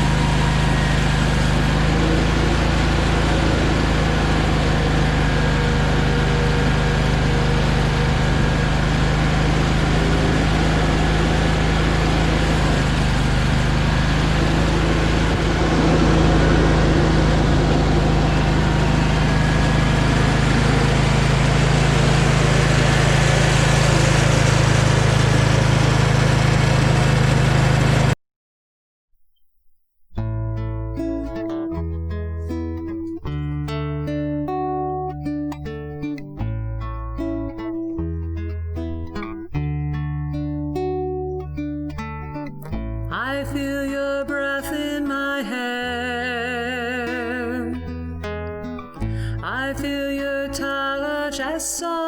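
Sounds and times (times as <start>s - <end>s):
engine running under load: 0.0s - 28.2s, 42.8s - 51.4s.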